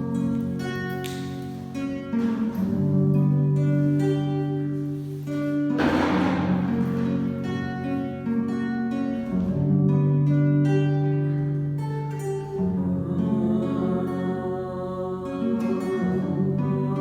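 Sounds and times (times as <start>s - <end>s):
plucked guitar melody: 0.0s - 14.5s.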